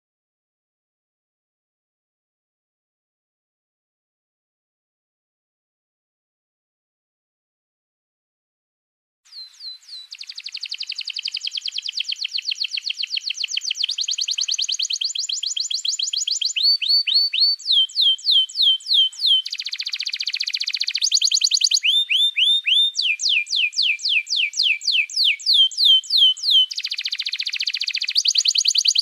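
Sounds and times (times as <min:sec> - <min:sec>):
songbird whistling and trilling: 0:09.3 - 0:29.0.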